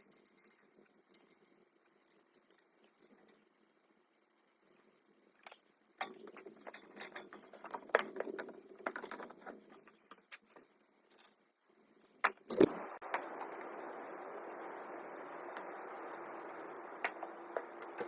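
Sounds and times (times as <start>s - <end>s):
sharp clicks: 12.3s - 13.8s
steady hiss: 12.5s - 18.0s.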